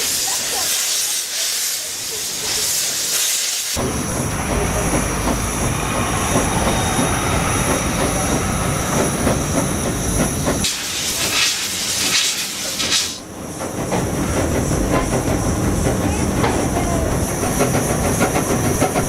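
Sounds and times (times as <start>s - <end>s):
high hiss: 0.0s - 13.3s
train rumbling on rails: 0.0s - 19.0s.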